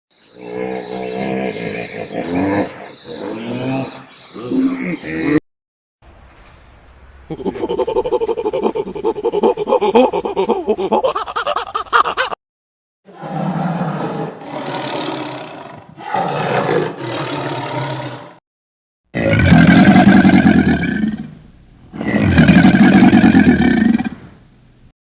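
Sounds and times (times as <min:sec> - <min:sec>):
animal calling: 0:13.1 - 0:18.4.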